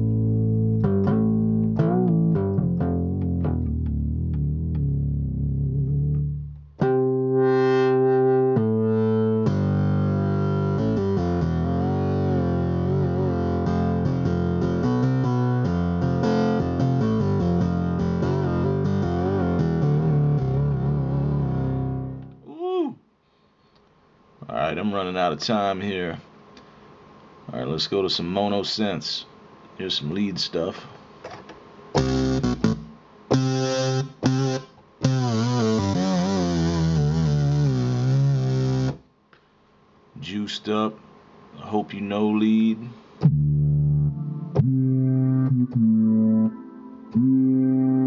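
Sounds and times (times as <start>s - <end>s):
synthesizer notes and chords: 0.0s - 22.4s, 32.0s - 39.0s, 43.2s - 48.0s.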